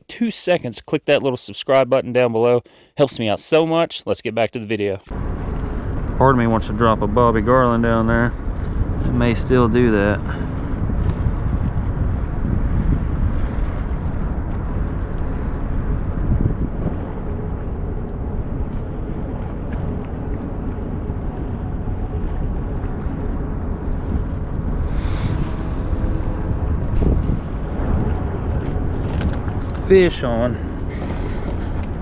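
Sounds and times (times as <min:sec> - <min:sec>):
low rumble: 0:05.0 - 0:32.0
wind buffeting microphone: 0:05.1 - 0:32.0
water moving around kayak: 0:10.4 - 0:30.0.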